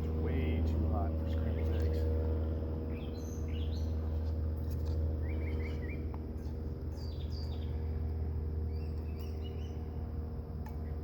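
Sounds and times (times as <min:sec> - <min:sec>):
birds chirping: 0:00.0 - 0:11.0
steady low drone: 0:00.0 - 0:11.0.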